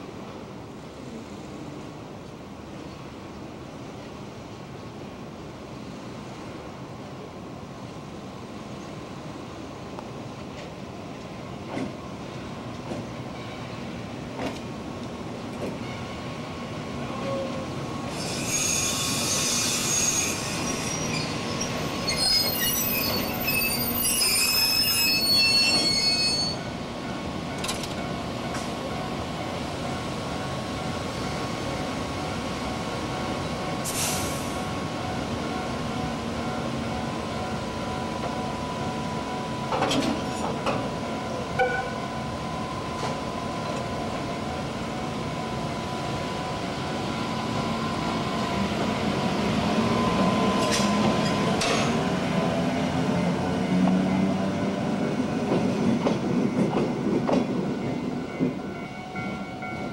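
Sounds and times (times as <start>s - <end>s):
train wheels squealing on rails: 17.1s - 26.8s, 33.4s - 35.2s, 49.4s - 52.2s
brief hiss: 33.8s - 34.6s
train wagons clanking: 39.6s - 40.9s, 50.6s - 52.1s, 55.5s - 59.9s.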